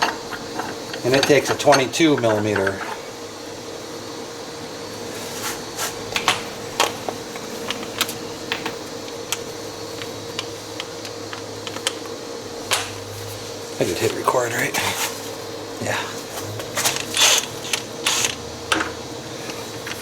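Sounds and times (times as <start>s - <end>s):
steady hum: 0.0s - 20.0s
metal tools clicking: 0.9s - 3.0s.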